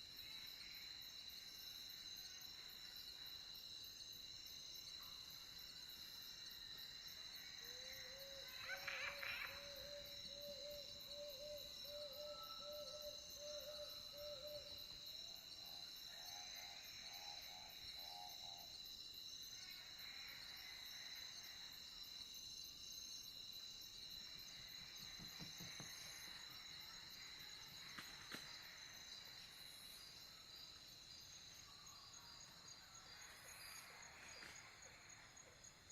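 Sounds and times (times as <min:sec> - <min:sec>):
insects chirring: 0:00.0 - 0:35.9.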